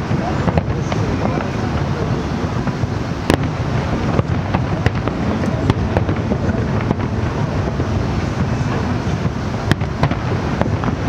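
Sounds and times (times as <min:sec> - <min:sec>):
fireworks bangs and cracks: 0:00.0 - 0:11.0
low rumble of explosions: 0:00.0 - 0:11.0.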